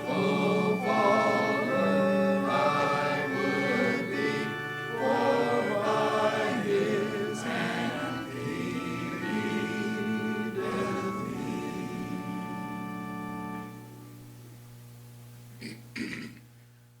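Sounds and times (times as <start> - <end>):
group singing a hymn: 0.0 - 13.7
keyboard accompaniment: 0.0 - 14.5.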